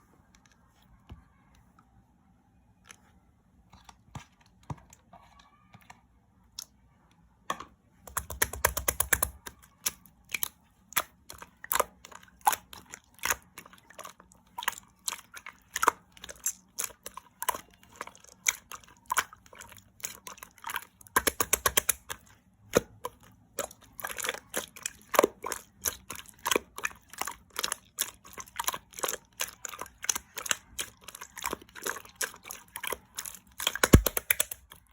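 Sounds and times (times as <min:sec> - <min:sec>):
crackly slime squishes: 0:08.1 - 0:34.9
slime clicking and popping: 0:21.2 - 0:22.0, 0:33.6 - 0:34.6.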